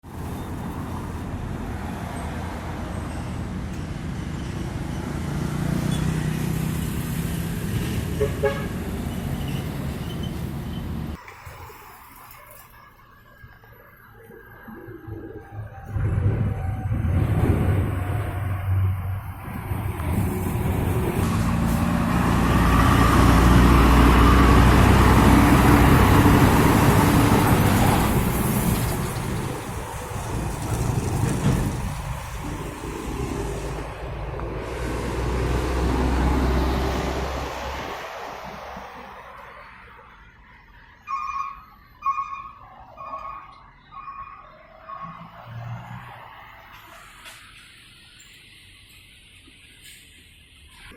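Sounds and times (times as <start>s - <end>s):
heavy road traffic: 0.0s - 50.9s
heavy vehicle engine passing: 0.1s - 11.2s, 15.1s - 39.4s
vehicle horn toots: 8.2s - 8.8s.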